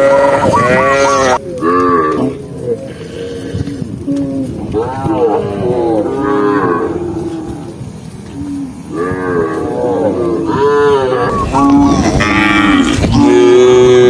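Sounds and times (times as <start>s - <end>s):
cows mooing: 0.0s - 14.0s.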